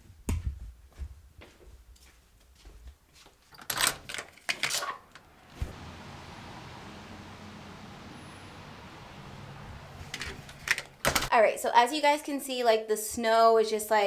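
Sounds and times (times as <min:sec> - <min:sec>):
knocks and rustles of movement: 0:00.0 - 0:06.4, 0:09.8 - 0:11.3
hiss of outdoor air: 0:05.5 - 0:11.0.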